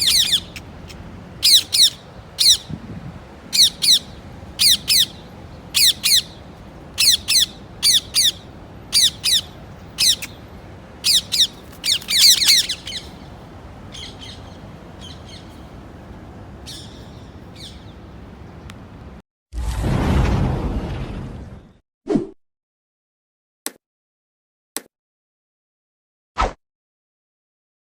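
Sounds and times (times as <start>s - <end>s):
parrot squawking: 0.0s - 2.7s, 3.4s - 10.4s, 11.0s - 15.7s.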